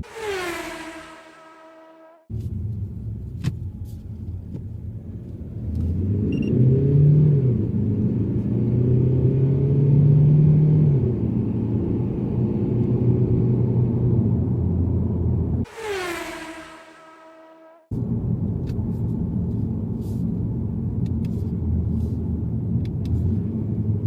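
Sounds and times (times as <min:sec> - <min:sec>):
car engine: 0:00.0 - 0:18.6
road rumble: 0:00.0 - 0:24.0.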